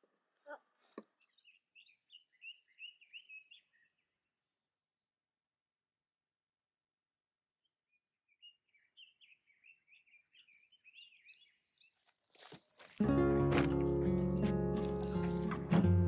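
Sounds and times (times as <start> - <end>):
songbird twittering: 1.2 - 4.6, 8.3 - 12.0, 13.1 - 16.0
acoustic guitar music: 13.0 - 16.0.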